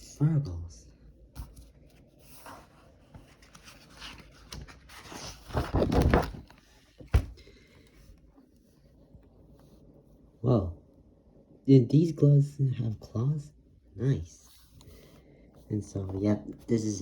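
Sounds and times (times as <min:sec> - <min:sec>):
book pages rustling: 0:01.4 - 0:09.9.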